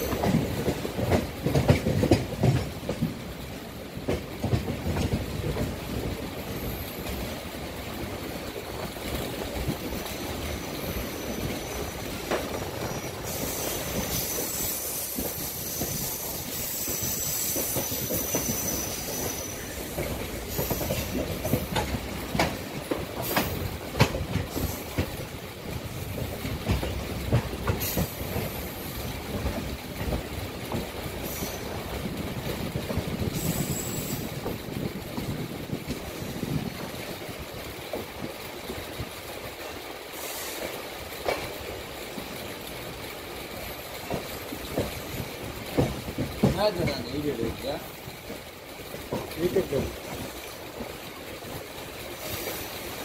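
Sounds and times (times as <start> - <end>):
clicks over rail joints: 0.0 - 3.2, 20.0 - 28.6, 40.6 - 42.4, 43.9 - 51.8
train wheels rumbling on rail: 0.0 - 53.0
high thin wheel squeal: 12.9 - 21.1.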